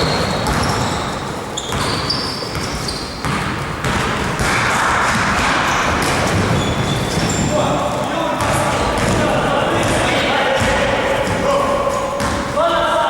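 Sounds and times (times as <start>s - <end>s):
short high squeaks: 0.0s - 3.2s, 5.8s - 8.2s
ball bouncing on court: 0.0s - 13.0s.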